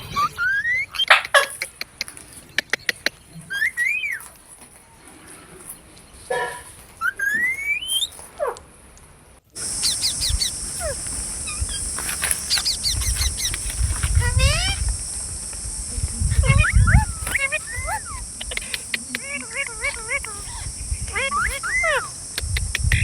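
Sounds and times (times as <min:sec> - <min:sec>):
quick chirps: 0:00.1 - 0:04.3, 0:09.6 - 0:23.0
sharp clicks: 0:01.2 - 0:03.2, 0:09.6 - 0:23.0
parrot whistling: 0:07.0 - 0:08.1, 0:09.6 - 0:15.3, 0:16.2 - 0:23.0
high-pitched hiss: 0:09.5 - 0:23.0.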